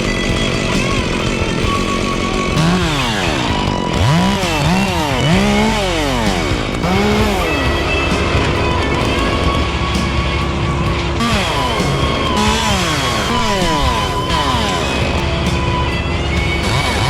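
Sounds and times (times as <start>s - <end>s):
chainsaw revving: 0.0s - 17.0s.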